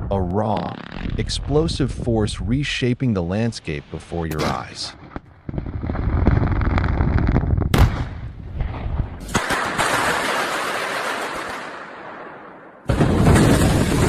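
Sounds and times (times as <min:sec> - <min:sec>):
sharp blast crack: 0:04.2 - 0:14.0
rumbling blast detonations: 0:04.4 - 0:14.0.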